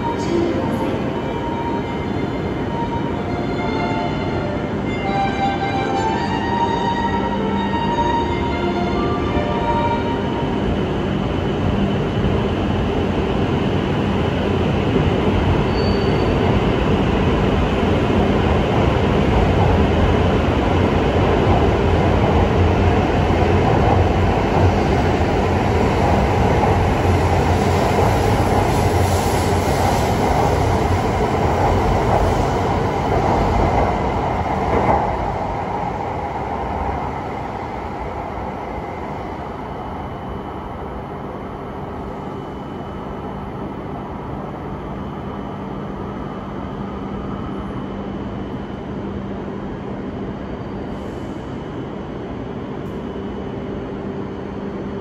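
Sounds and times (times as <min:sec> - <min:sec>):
high-speed train running noise: 0:00.0 - 0:55.0.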